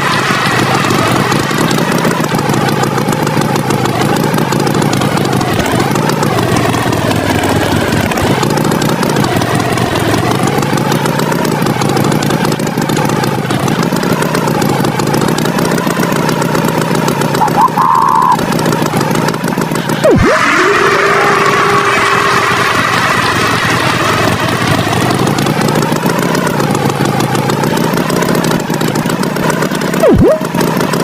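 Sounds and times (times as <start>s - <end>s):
cartoon tractor engine: 0.0s - 31.0s
swooping tone: 17.4s - 18.4s, 20.0s - 23.8s, 30.0s - 30.5s.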